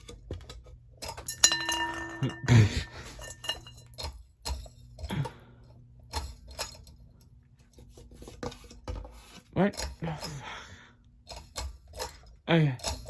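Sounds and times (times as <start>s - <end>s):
parts clattering: 0.0s - 5.1s
metallic clink: 1.1s - 4.1s.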